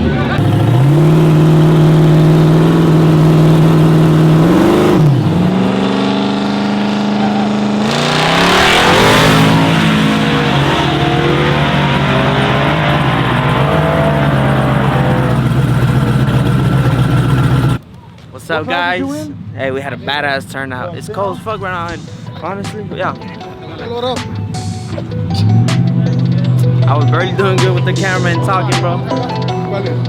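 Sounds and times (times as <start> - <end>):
truck engine at high revs: 0.0 - 17.8.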